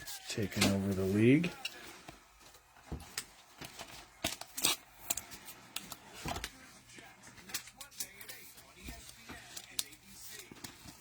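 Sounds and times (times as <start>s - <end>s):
cards and wrappers clicking: 3.1s - 11.0s.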